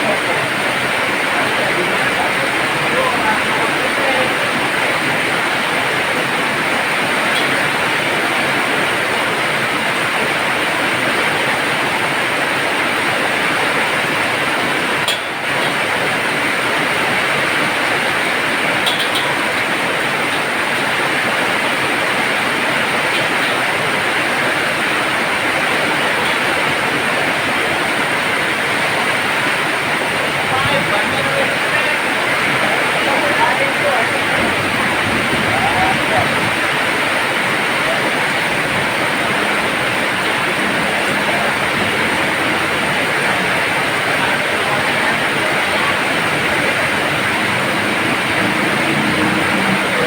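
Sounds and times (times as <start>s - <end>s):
heavy rain pouring: 0.0s - 50.0s.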